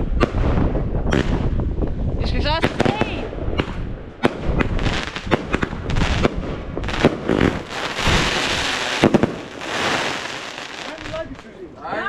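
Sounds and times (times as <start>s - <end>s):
fireworks bangs: 0.0s - 1.8s, 2.5s - 11.7s
fireworks crackling: 2.5s - 11.8s.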